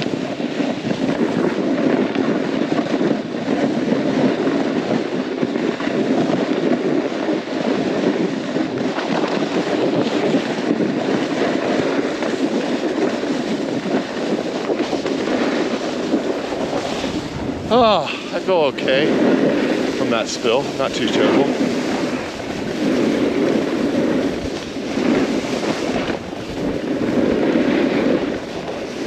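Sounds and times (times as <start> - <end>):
snowboard scraping over snow: 0.0 - 29.0
wind noise on microphone: 0.0 - 29.0.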